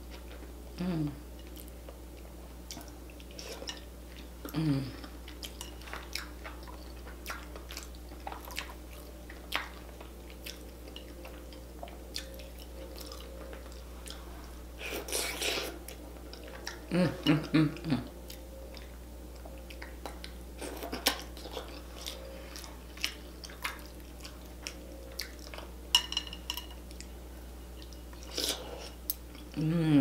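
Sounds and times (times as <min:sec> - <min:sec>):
wet chewing and lip smacks: 0:05.2 - 0:14.2.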